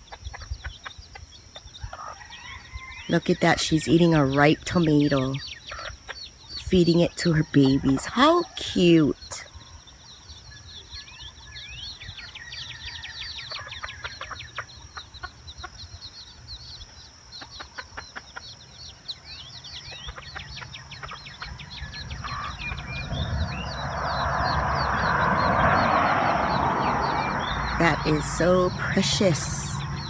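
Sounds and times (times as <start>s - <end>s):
baby chicks peeping: 0.0s - 30.0s
rushing noise: 21.9s - 30.0s.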